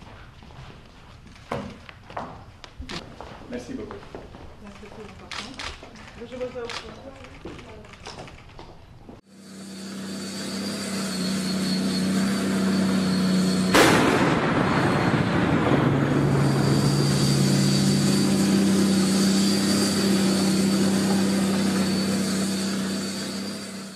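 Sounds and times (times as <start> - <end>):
helicopter turbine engine whine: 9.2 - 23.9
sudden loud burst: 13.4 - 19.2.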